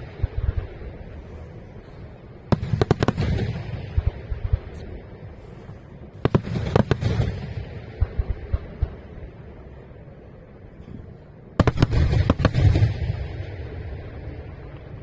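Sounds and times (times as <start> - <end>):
fireworks bursting with sharp bangs: 0.0 - 9.8, 11.0 - 15.0
low rumbling echo: 0.0 - 15.0.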